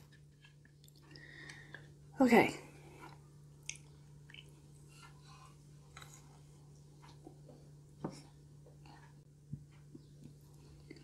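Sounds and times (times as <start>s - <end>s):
chewing cookie: 3.0s - 7.4s.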